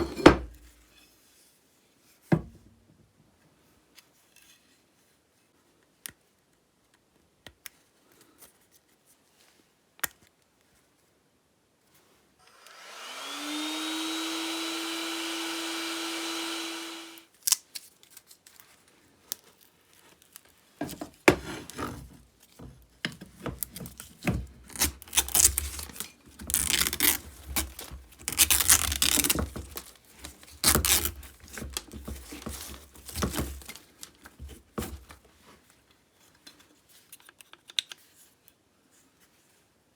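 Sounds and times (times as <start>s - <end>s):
small electric motor whining: 12.4s - 17.3s
scraping and scrubbing parts: 13.0s - 17.2s
clicks of parts handled: 36.4s - 38.6s.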